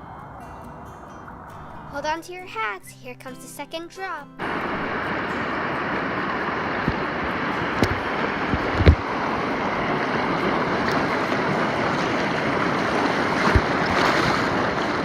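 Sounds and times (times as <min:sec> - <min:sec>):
rushing river water: 0:04.4 - 0:15.0
raft thumps: 0:13.4 - 0:14.5.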